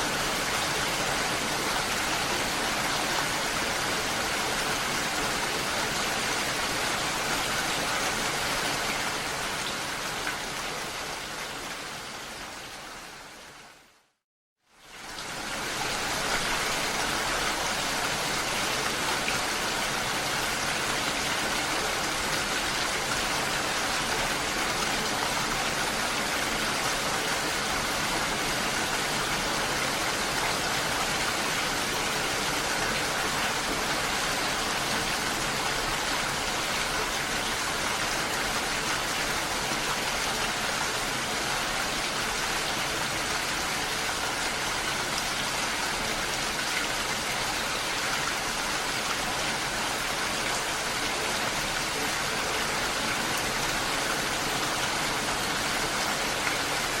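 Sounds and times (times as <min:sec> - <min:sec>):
water rushing: 0:15.0 - 0:57.0.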